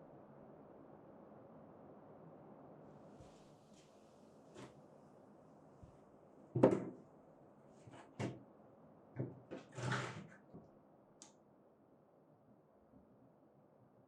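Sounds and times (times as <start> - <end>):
short knocks and clunks: 6.6 - 7.0.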